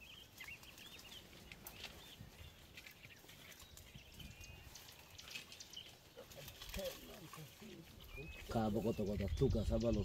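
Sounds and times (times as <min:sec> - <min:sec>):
brush rustling and cracking: 0:00.0 - 0:09.4.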